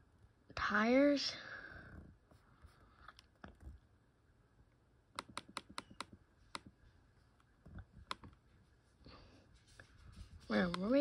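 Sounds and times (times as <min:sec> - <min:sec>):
computer keyboard key clicks: 0:05.2 - 0:06.7.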